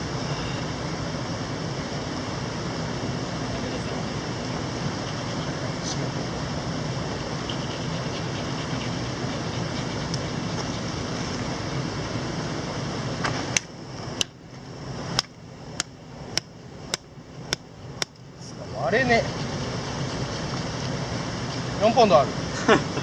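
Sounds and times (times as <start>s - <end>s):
mountain stream rushing: 0.0s - 16.3s.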